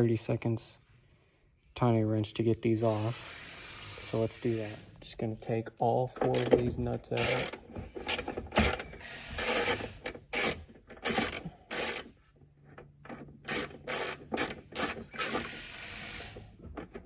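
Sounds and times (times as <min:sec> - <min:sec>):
wrench ratcheting: 0:02.9 - 0:05.6, 0:06.2 - 0:12.1, 0:13.5 - 0:16.4.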